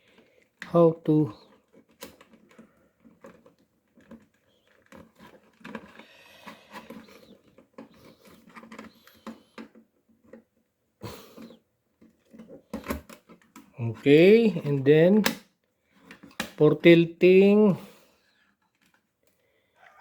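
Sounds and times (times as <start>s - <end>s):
plastic clicks and scrapes: 1.4s - 10.7s, 11.3s - 16.6s.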